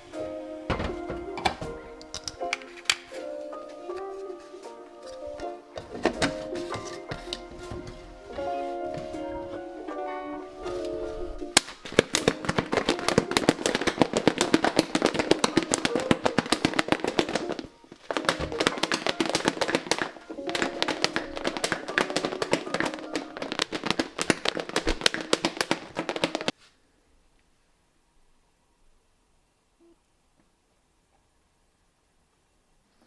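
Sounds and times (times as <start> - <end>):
soft background music: 0.0 - 24.5.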